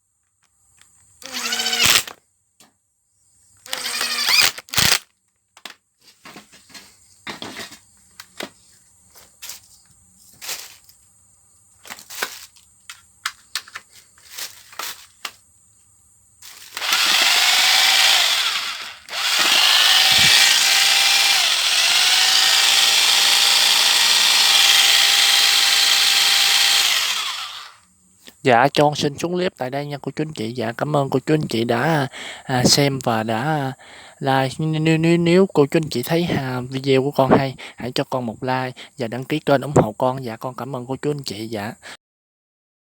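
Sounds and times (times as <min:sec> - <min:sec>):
rotary hammer drill motor running: 0:01.2 - 0:02.1, 0:03.6 - 0:05.0, 0:16.6 - 0:27.8
tool handling clicks and knocks: 0:11.8 - 0:15.4, 0:16.5 - 0:21.0.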